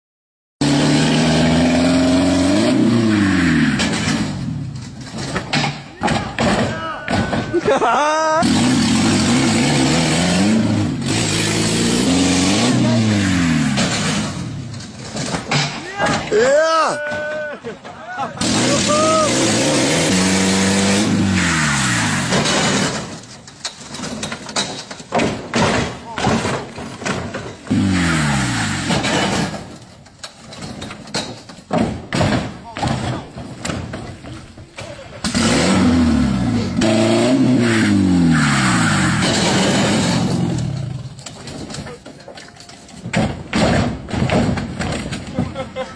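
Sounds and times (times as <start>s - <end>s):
truck engine running and winding down: 0.6s - 4.9s, 8.4s - 14.9s, 18.4s - 23.4s, 27.7s - 29.7s, 35.2s - 41.2s
knocks and clatter: 1.0s - 37.0s, 38.5s - 45.9s
truck engine running: 8.4s - 15.6s
knocks: 30.6s - 34.9s, 41.6s - 45.6s.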